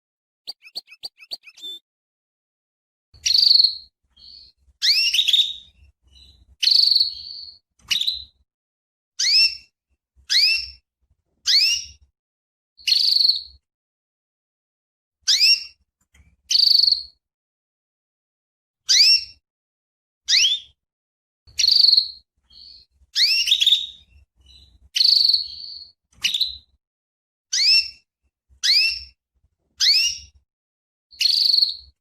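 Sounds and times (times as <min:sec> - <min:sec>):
canary chirping and calling: 0:00.5 - 0:01.8, 0:03.2 - 0:08.4, 0:09.2 - 0:10.8, 0:11.4 - 0:12.1, 0:12.8 - 0:13.6, 0:15.3 - 0:17.2, 0:18.9 - 0:19.4, 0:20.3 - 0:20.8, 0:21.5 - 0:26.8, 0:27.5 - 0:29.2, 0:29.8 - 0:30.4, 0:31.1 - 0:32.0.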